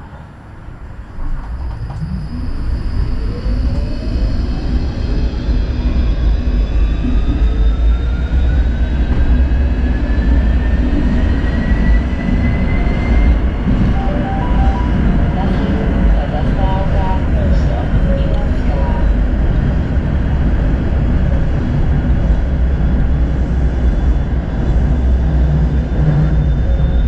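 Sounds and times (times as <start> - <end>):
tram motor whine: 0.0 - 27.0
wheels rumbling on rails: 0.0 - 27.0.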